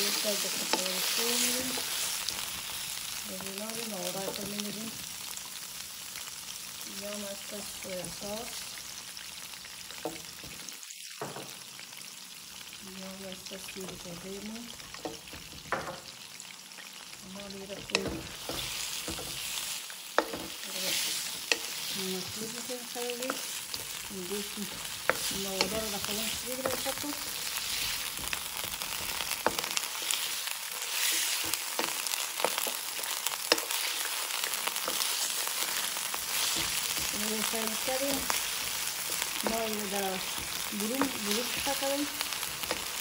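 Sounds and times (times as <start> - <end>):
meat sizzling in a wok: 0.0 - 43.0
wooden spoon knocking on pan: 15.0 - 16.1, 17.7 - 19.4, 20.2 - 20.6.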